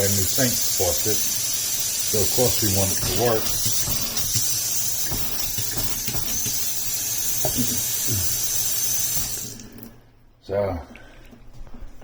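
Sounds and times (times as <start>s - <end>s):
water running from faucet: 0.0s - 10.0s.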